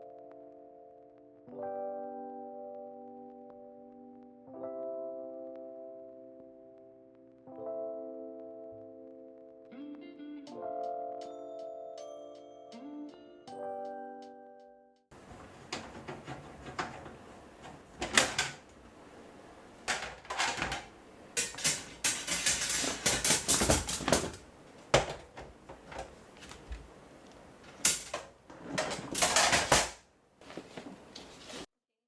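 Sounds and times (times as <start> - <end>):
household objects knocking: 15.1 - 29.9
rustling scrapes: 15.1 - 31.7.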